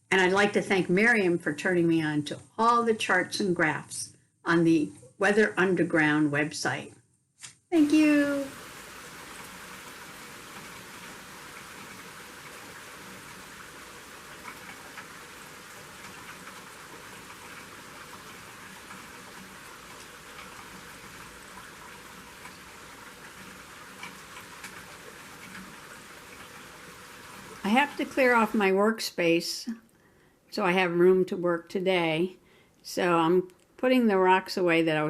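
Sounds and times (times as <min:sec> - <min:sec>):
steady rain falling: 0:07.7 - 0:28.8
raindrops ticking: 0:07.8 - 0:28.7.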